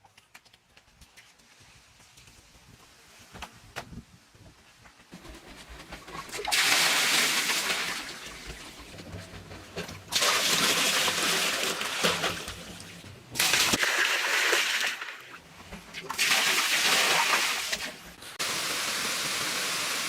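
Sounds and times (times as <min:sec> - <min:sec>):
water rushing and splashing: 0:06.4 - 0:08.9, 0:10.1 - 0:20.0.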